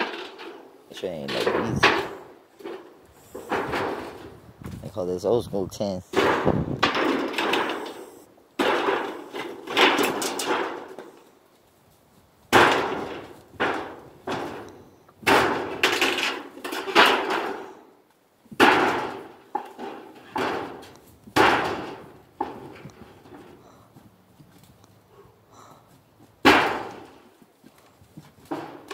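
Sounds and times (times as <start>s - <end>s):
metal roofing sheets crashing: 0.0s - 4.3s, 6.1s - 11.3s, 12.5s - 17.9s, 18.5s - 23.8s, 26.4s - 27.3s, 28.3s - 28.9s.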